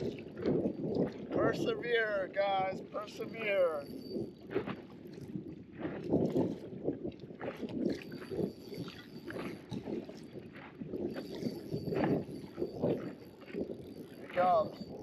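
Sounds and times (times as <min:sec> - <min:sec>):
wind buffeting microphone: 0:00.0 - 0:15.0
water slapping against boat hull: 0:05.7 - 0:08.2.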